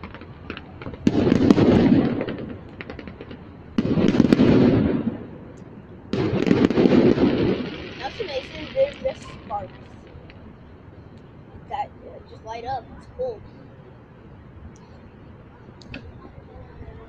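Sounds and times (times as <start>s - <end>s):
distant firework booms: 0.0s - 5.5s, 6.1s - 10.4s.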